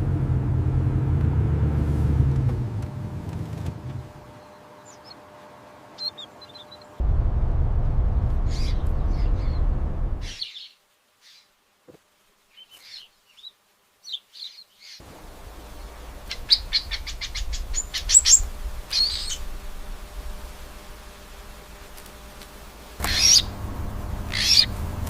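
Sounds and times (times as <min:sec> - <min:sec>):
low rumbling background: 0:00.0 - 0:05.0, 0:07.0 - 0:10.4, 0:15.1 - 0:21.8, 0:22.6 - 0:25.0
small bird chirping: 0:04.3 - 0:07.0, 0:08.5 - 0:11.5, 0:12.5 - 0:15.0, 0:15.8 - 0:19.5, 0:23.0 - 0:23.5, 0:24.3 - 0:24.8.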